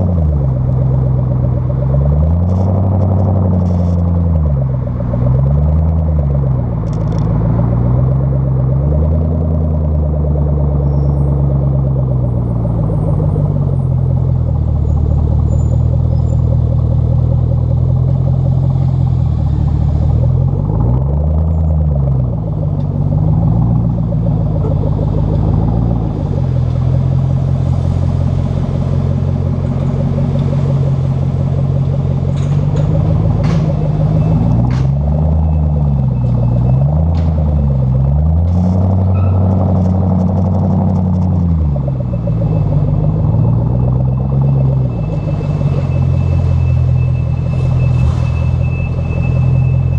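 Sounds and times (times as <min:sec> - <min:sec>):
car engine exhaust note: 0:00.0 - 0:49.9
throttle blips: 0:28.7 - 0:49.9.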